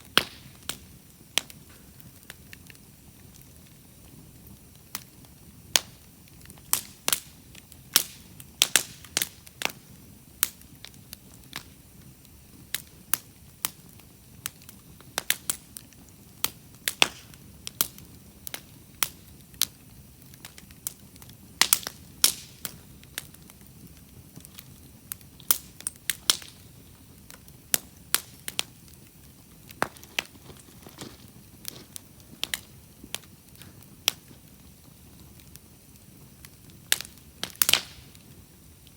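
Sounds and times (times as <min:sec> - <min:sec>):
campfire crackling: 0:00.0 - 0:38.9
fire popping: 0:00.0 - 0:38.9.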